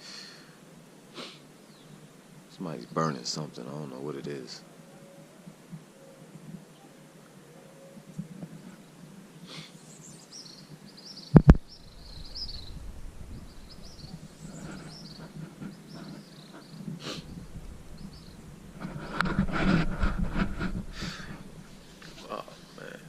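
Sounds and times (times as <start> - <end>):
birds chirping: 1.2 - 19.3
low hum: 11.5 - 16.0.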